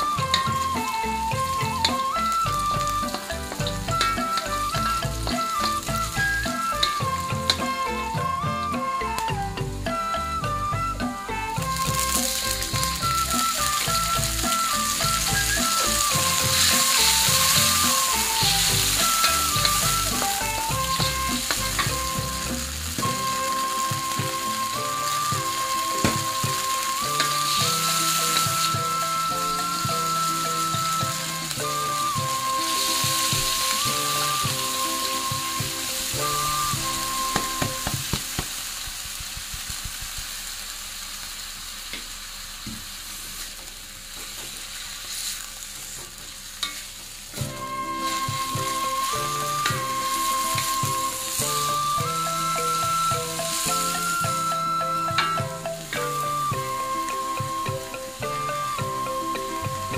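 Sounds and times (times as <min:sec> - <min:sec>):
background music: 0:00.0 - 0:38.4, 0:47.4 - 0:59.9
food sizzling in a wok: 0:00.0 - 0:59.9
spatula stirring: 0:11.6 - 0:40.0
spatula knocking on pan: 0:25.2 - 0:29.0.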